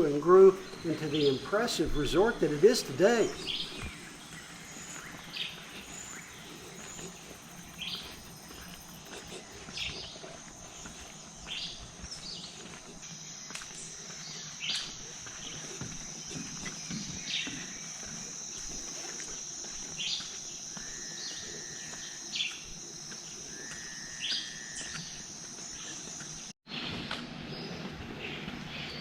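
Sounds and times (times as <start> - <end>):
short chirping calls: 0.0 - 12.5
insects buzzing trill: 0.0 - 26.6.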